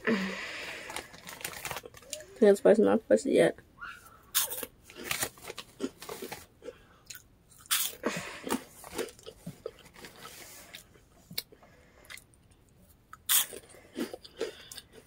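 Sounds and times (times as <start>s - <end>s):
person chewing crunchy snack: 4.3s - 12.3s, 13.1s - 15.0s.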